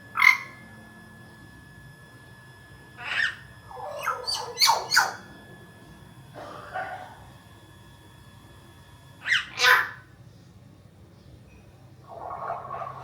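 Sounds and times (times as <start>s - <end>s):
bird whistles and squawks: 3.0s - 5.3s, 9.2s - 10.0s
myna calling: 3.0s - 5.3s, 9.2s - 10.1s.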